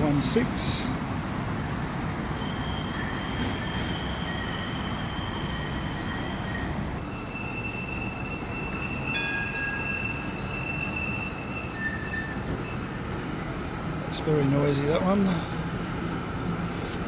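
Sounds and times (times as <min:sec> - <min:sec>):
tram wheels squealing: 0:02.2 - 0:17.0
rumble of tram wheels: 0:06.7 - 0:17.0.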